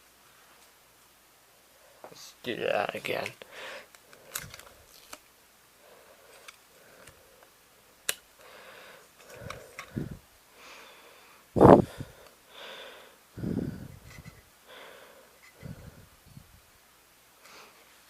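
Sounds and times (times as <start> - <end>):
person breathing softly: 3.4 - 4.7, 5.8 - 7.5, 8.4 - 16.5, 17.4 - 17.9.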